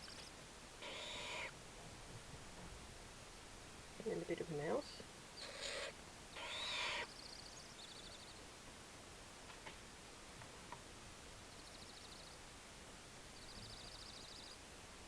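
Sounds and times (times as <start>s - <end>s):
owl chick rasping call: 0.0s - 1.6s, 5.4s - 8.3s.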